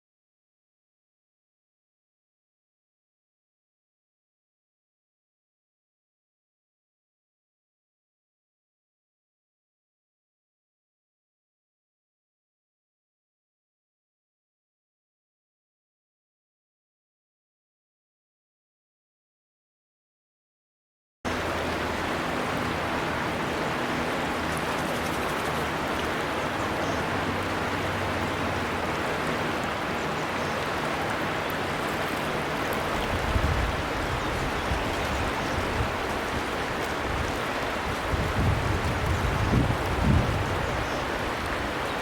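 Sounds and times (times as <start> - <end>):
river water flowing: 21.3 - 42.0.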